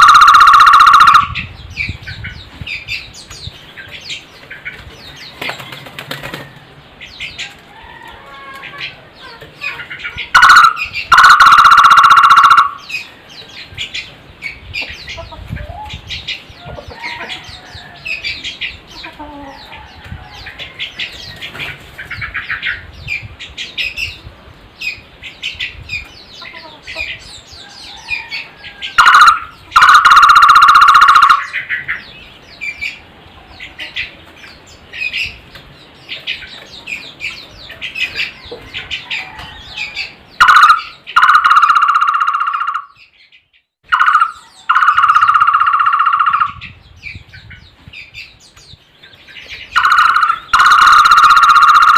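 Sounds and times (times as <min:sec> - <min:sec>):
barbet calling low pulsed notes: 0:00.0 - 0:01.5, 0:10.4 - 0:13.0, 0:29.0 - 0:31.6, 0:43.9 - 0:46.6, 0:49.8 - 0:51.9
small birds chirping: 0:00.0 - 0:51.9.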